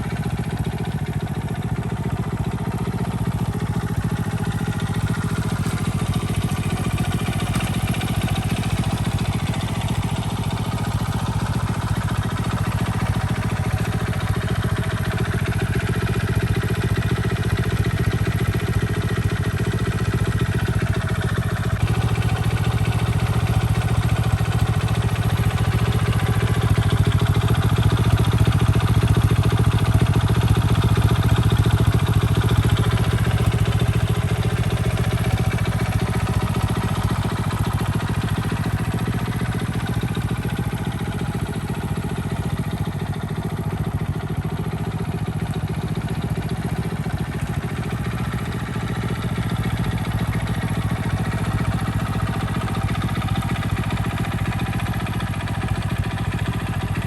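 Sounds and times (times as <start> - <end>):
small motorcycle engine idling: 0.0 - 57.0.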